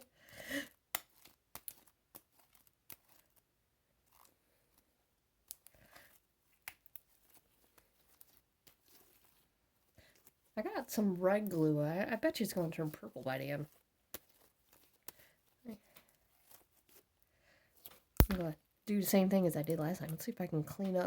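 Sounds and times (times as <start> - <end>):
slime clicking and crackling: 0.9 - 3.4, 5.4 - 9.4, 14.1 - 15.2, 17.8 - 18.6.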